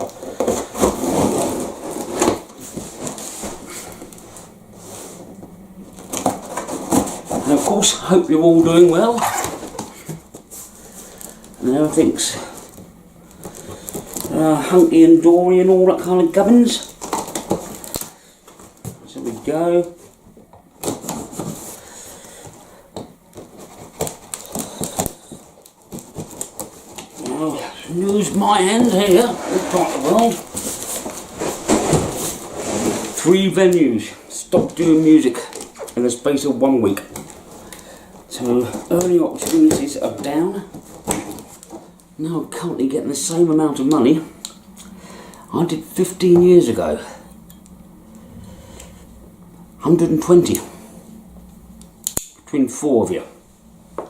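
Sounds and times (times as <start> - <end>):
cardboard parcel rubbing and scraping: 0.0 - 5.3, 5.9 - 12.7, 23.4 - 42.0
handling rustling: 0.0 - 52.2.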